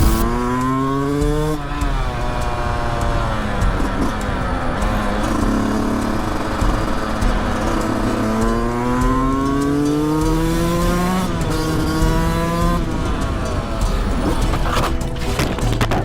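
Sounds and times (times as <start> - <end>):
vehicle engine accelerating: 0.0 - 16.0.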